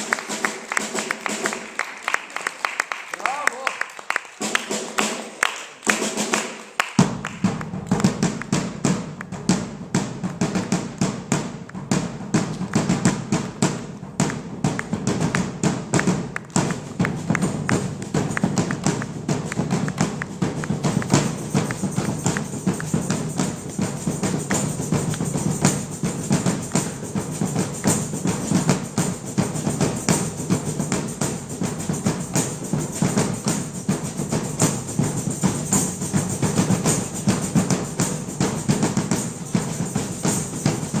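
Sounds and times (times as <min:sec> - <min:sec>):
drum ensemble playing: 0:00.0 - 0:41.0.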